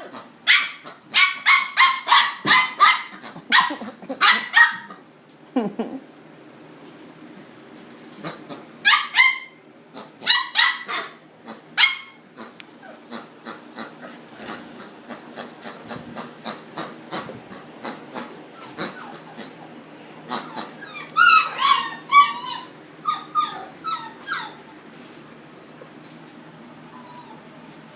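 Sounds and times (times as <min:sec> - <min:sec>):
dog and boar cries and barks: 0:00.0 - 0:05.0, 0:08.3 - 0:24.9.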